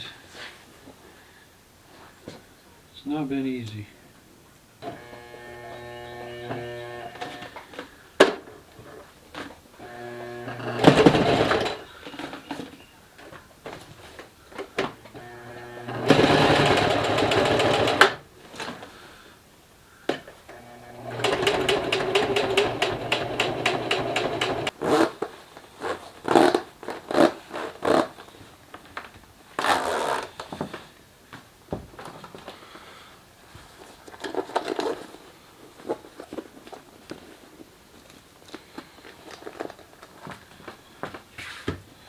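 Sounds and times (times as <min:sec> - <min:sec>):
zipper being pulled: 0:24.6 - 0:25.2, 0:29.6 - 0:30.3.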